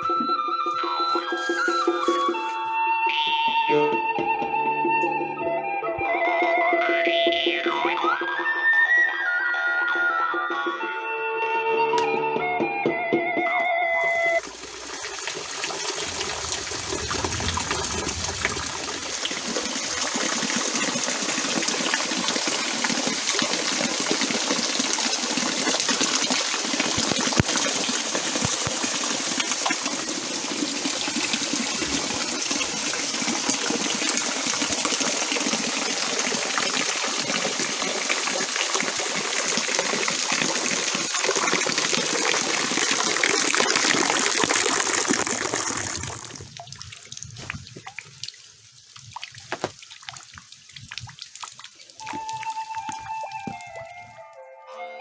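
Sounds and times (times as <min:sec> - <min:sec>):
water splashing and running: 0:00.0 - 0:02.7, 0:14.0 - 0:54.4
heavy rain: 0:14.2 - 0:37.9.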